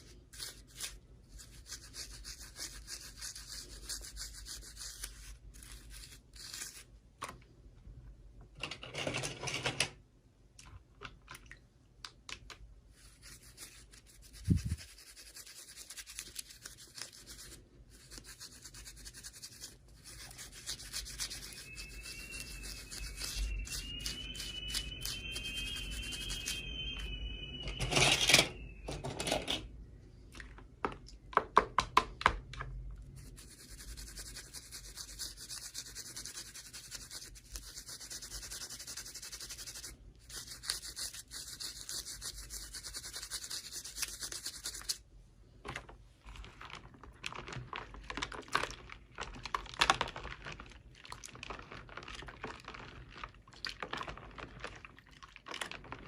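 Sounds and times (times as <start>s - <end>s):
hands handling toy packaging: 45.6s - 56.0s.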